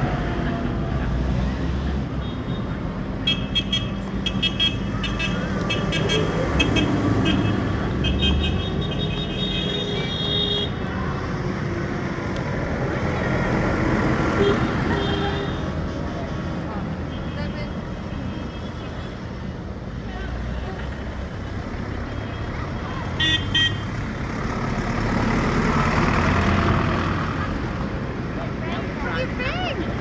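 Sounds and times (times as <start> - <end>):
tractor engines running: 19.2 - 30.0.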